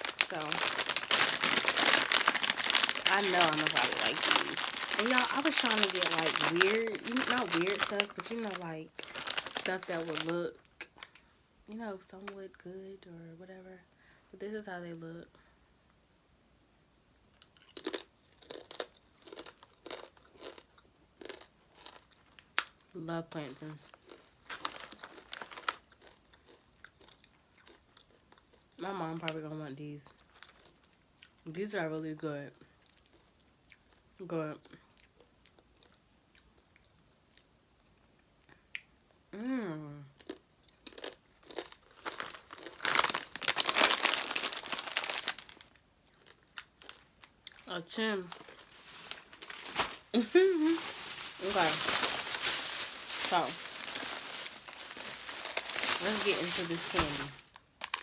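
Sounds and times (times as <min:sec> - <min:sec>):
plastic bag crinkling: 0:00.0 - 0:11.1, 0:23.6 - 0:26.1, 0:41.4 - 0:58.0
crunching chips being chewed: 0:00.0 - 0:11.2, 0:17.4 - 0:22.8, 0:23.9 - 0:28.8, 0:30.1 - 0:31.4, 0:32.8 - 0:34.0, 0:35.0 - 0:37.5, 0:40.2 - 0:47.7, 0:48.3 - 0:58.0.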